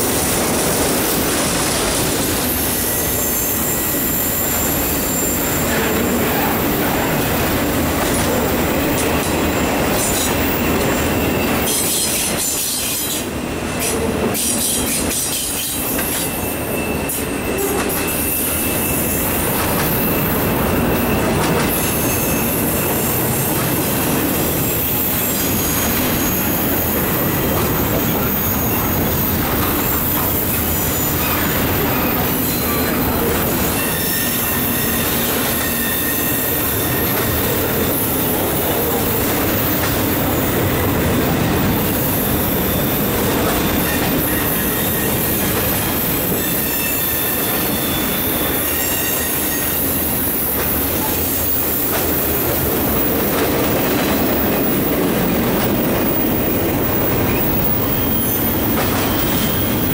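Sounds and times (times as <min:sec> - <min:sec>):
train wheels rumbling on rails: 0:00.0 - 0:59.9
high-pitched wheel squeals: 0:02.5 - 0:07.3, 0:14.5 - 0:23.4, 0:24.3 - 0:41.0, 0:41.6 - 0:50.6, 0:54.2 - 0:59.9.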